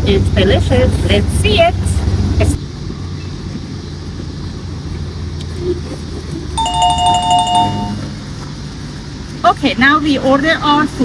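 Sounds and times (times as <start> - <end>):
low rumble of traffic: 0.0 - 11.0
two-note electronic chime: 6.6 - 8.1.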